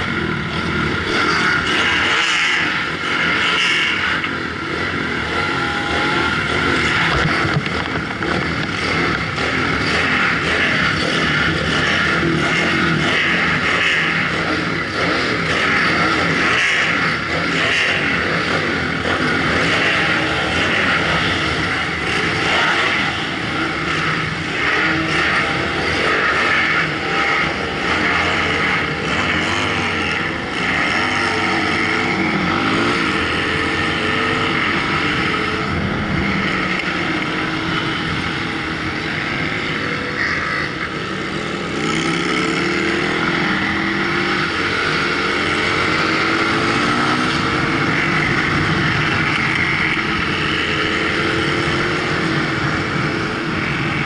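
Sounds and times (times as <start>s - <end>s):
motorcycle engine revving: 0.0s - 54.0s
other motorcycles nearby: 0.0s - 54.0s.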